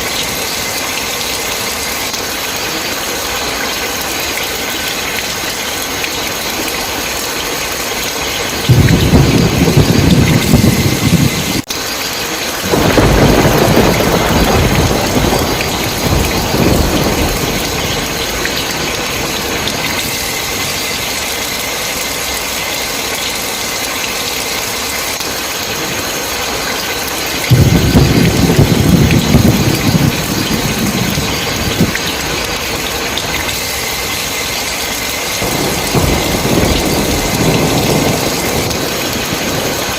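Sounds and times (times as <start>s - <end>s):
heavy rain falling: 0.0s - 39.9s
rolls of thunder: 8.6s - 11.6s, 12.6s - 20.3s, 27.5s - 34.0s, 35.4s - 39.9s.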